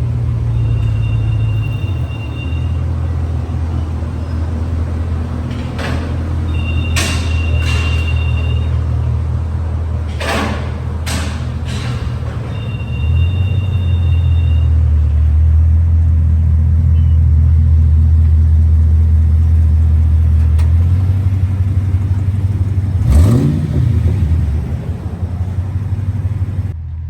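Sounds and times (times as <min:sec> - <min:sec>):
car engine idling: 0:00.0 - 0:27.0
faint high steady tone: 0:12.6 - 0:15.2.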